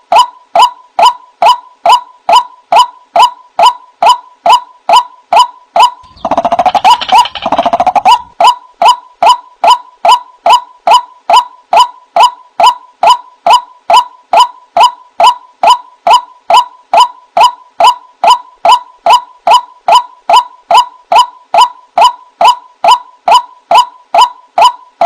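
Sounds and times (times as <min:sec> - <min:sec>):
rapid rough chattering: 0:06.0 - 0:08.3
waterhen calling: 0:06.0 - 0:09.8.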